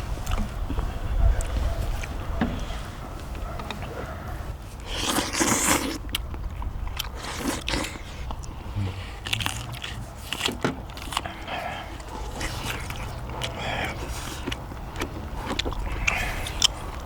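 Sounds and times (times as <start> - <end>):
biting and chewing food: 0.0 - 17.0
sharp mouth clicks: 4.9 - 17.0
steady low hum: 6.0 - 17.0.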